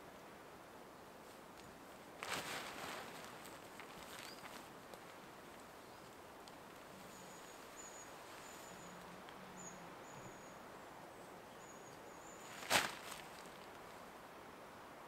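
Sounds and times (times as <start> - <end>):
tarp rustling: 2.2 - 5.2, 12.4 - 13.8.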